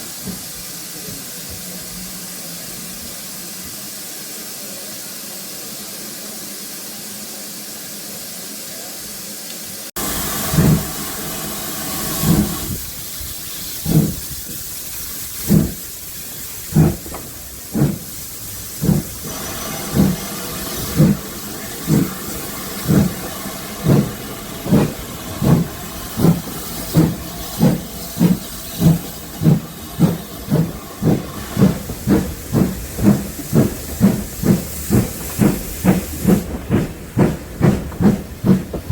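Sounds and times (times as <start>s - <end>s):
steady steam hiss: 0.0s - 38.9s
steam locomotive exhaust chuffs: 10.0s - 38.9s.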